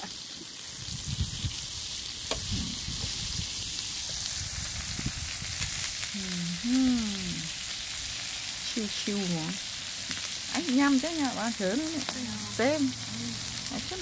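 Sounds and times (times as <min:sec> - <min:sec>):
food sizzling on a griddle: 0:00.0 - 0:14.0
person's voice: 0:06.2 - 0:07.5.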